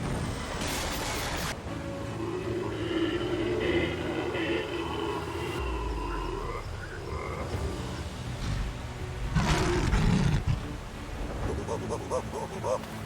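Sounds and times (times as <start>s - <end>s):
animals croaking: 2.0s - 7.8s, 9.3s - 13.0s.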